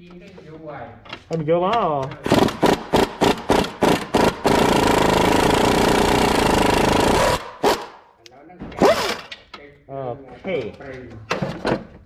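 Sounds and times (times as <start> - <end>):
power tool trigger bursts: 2.3 - 8.0, 8.8 - 9.3.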